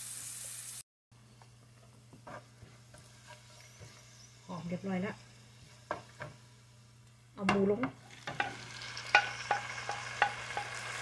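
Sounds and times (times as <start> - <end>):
meat sizzling in frying pan: 0.0 - 0.8, 8.0 - 11.0.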